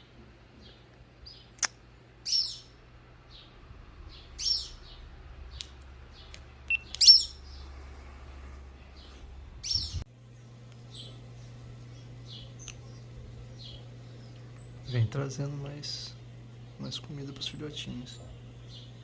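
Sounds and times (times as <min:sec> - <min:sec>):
sharp click: 0:01.6 - 0:01.8
songbird high calls: 0:02.2 - 0:02.8, 0:04.2 - 0:05.0, 0:06.7 - 0:07.6.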